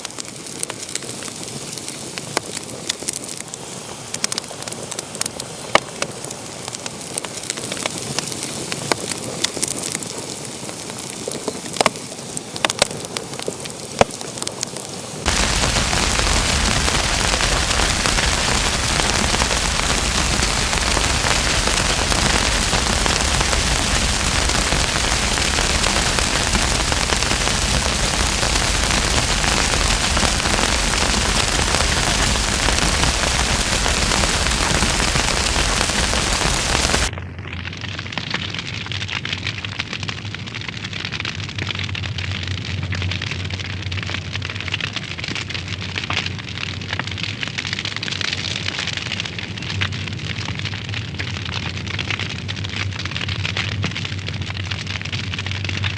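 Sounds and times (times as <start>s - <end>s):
wood fire crackling and popping: 0.0s - 55.9s
steady hiss: 0.1s - 37.1s.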